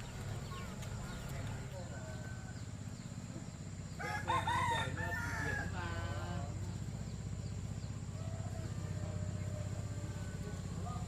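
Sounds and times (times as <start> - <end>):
rooster crowing: 4.0 - 6.3, 8.1 - 10.5.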